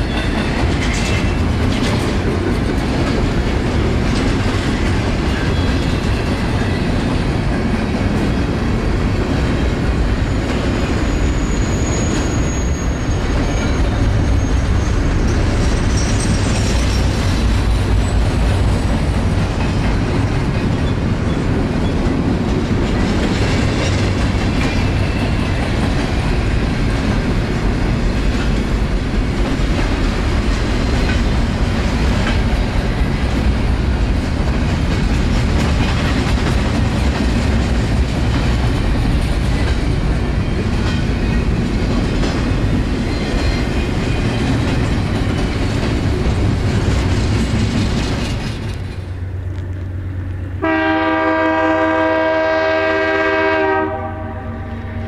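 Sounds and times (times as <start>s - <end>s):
freight train rolling past: 0.0s - 55.0s
high wheel squeal: 10.2s - 18.9s.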